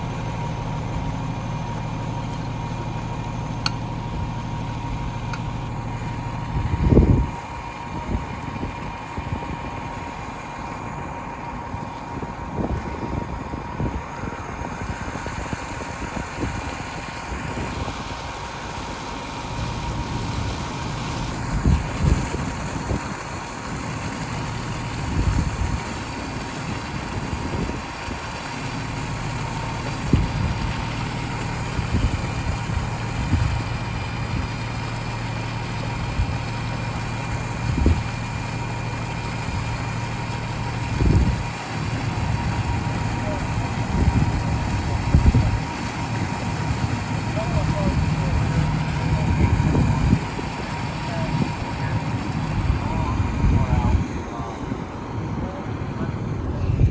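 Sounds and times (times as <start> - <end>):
fire engine idling: 0.0 - 56.9
constant rushing noise: 2.2 - 56.9.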